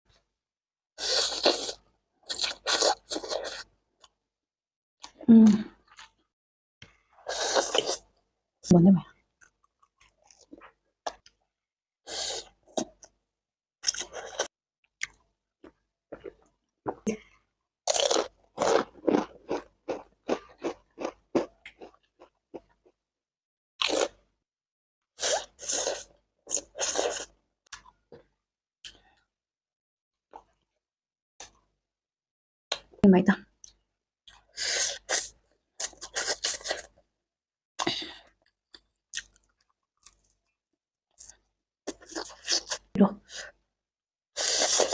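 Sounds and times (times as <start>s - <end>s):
chewing crunchy noodles: 1.0s - 4.2s, 5.0s - 6.2s, 6.9s - 8.1s, 9.4s - 11.4s, 13.8s - 23.0s, 23.8s - 24.2s, 25.2s - 28.2s, 33.6s - 37.0s, 37.8s - 40.6s, 41.2s - 43.5s, 44.4s - 44.9s
noodles slurped: 7.2s - 8.0s, 25.2s - 27.3s, 34.3s - 36.9s, 44.4s - 44.9s.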